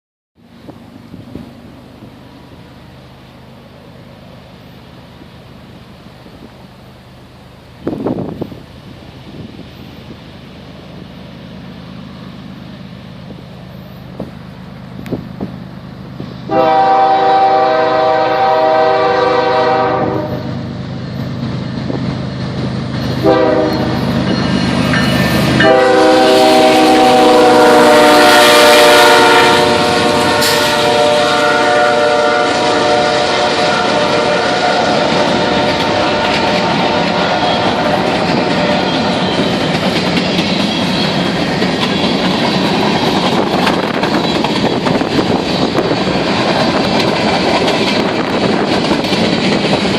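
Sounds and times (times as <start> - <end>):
diesel locomotive engine hum: 0.4 - 49.9
train wheels rolling: 0.4 - 49.9
train air horn blasts: 16.5 - 20.6, 23.2 - 24.2, 25.2 - 39.7.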